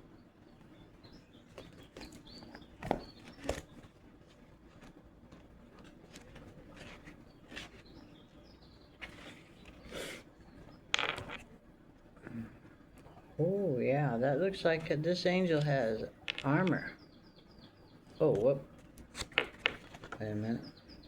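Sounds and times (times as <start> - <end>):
faint bird chirps: 0.0 - 4.0, 6.6 - 10.9, 12.2 - 18.9, 20.1 - 21.0
handling clicks and knocks: 10.9 - 11.5, 15.6 - 16.9, 18.3 - 20.3.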